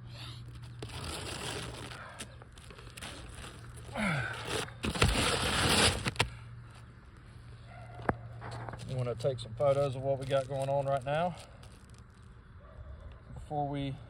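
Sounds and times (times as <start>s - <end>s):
shingles rustling and scraping: 0.4s - 6.9s.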